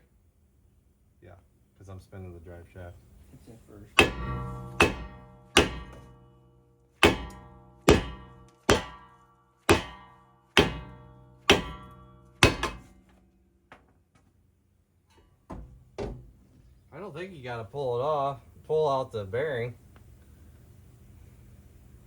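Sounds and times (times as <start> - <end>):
hammer striking metal rotor: 4.0 - 13.5.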